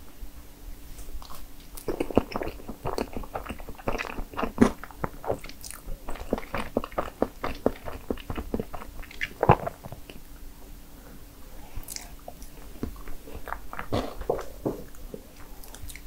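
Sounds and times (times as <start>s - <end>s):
chewing mouth clicks and smacks: 1.2s - 10.2s, 11.8s - 16.0s.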